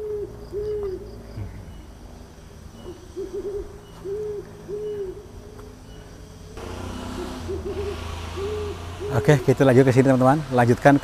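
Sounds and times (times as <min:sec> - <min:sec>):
bird hooting call: 0:00.0 - 0:01.9, 0:02.8 - 0:06.1, 0:07.0 - 0:09.5.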